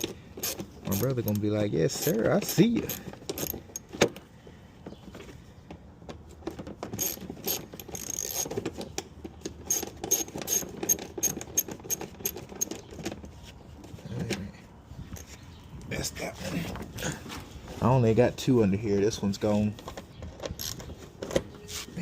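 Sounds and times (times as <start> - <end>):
socket ratchet clicking: 0.0 - 3.9.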